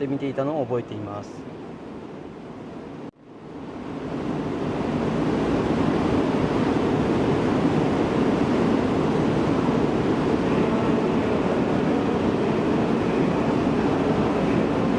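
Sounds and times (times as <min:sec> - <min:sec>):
train passing rumble: 0:03.6 - 0:14.9.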